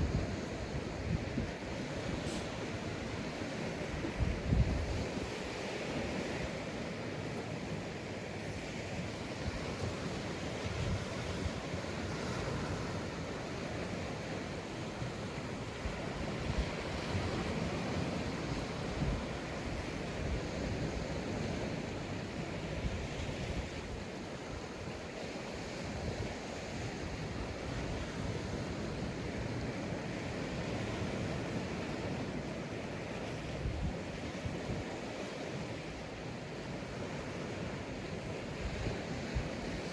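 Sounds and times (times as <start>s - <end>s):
wind buffeting microphone: 0.0s - 6.5s
sea waves breaking on beach: 0.0s - 39.9s.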